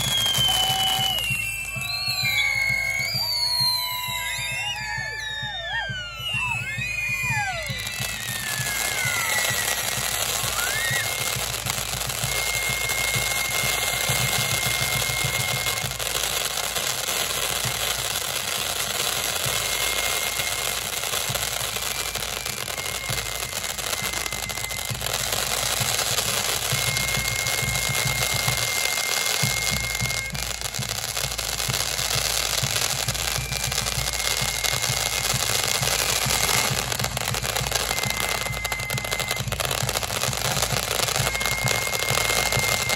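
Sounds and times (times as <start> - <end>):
fireworks crackling barrage: 0.0 - 42.9
high firework whistle: 0.0 - 42.9.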